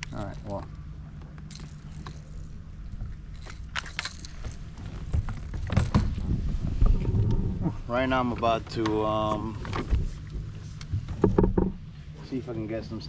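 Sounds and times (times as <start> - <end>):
fishing gear clicking and rattling: 0.0 - 6.5
bumps against kayak hull: 10.9 - 11.8.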